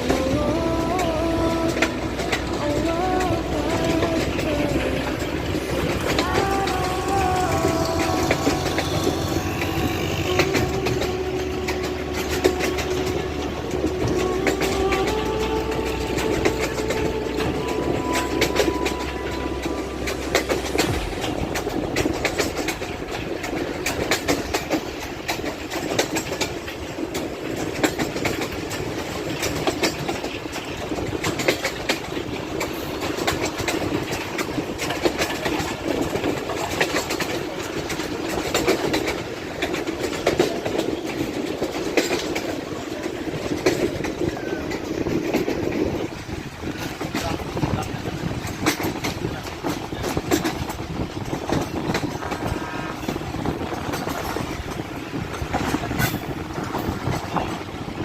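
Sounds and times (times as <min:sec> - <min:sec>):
low locomotive drone: 0:00.0 - 0:58.0
train wheels clattering over rail joints: 0:00.0 - 0:58.0.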